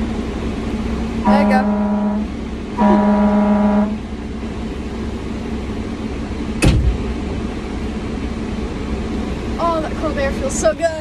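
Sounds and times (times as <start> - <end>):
fire engine running: 0.0 - 11.0
fire engine horn blast: 1.2 - 4.1.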